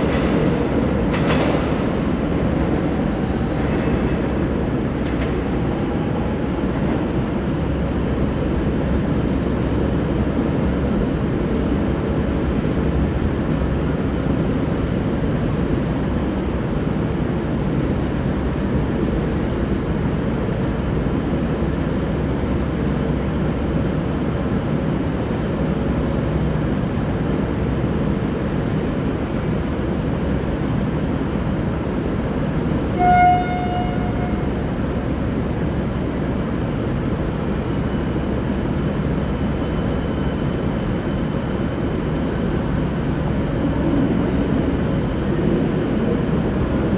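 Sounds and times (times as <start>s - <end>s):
train rumbling: 0.0s - 46.9s
train horn toot: 32.9s - 34.8s.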